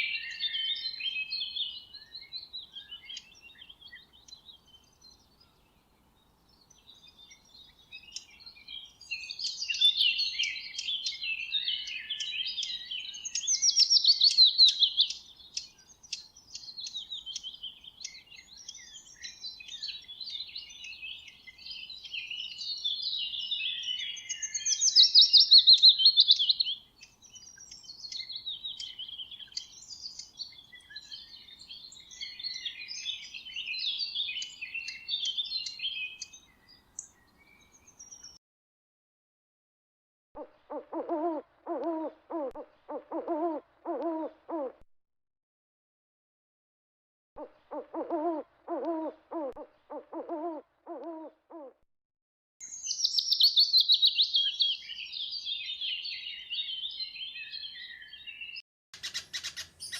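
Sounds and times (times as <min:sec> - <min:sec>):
small birds chirping: 0:00.0 - 0:38.4, 0:52.6 - 0:59.9.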